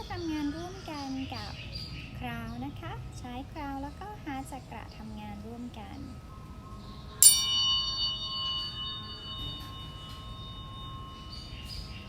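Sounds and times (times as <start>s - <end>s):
high ringing tones: 6.2s - 12.0s
tuning fork clang: 7.2s - 12.0s.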